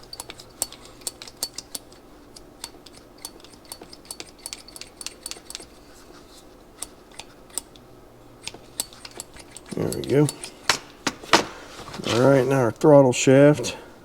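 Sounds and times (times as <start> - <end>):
small metal parts clicking and clinking: 0.0 - 5.8, 8.4 - 10.8.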